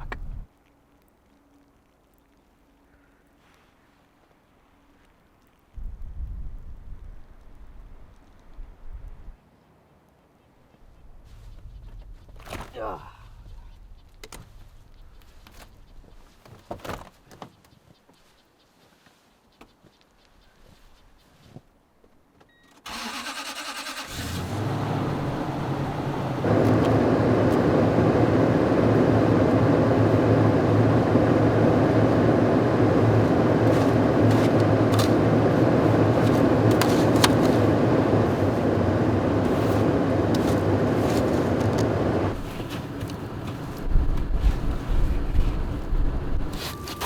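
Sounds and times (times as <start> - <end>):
truck engine starting and idling: 22.9 - 47.0.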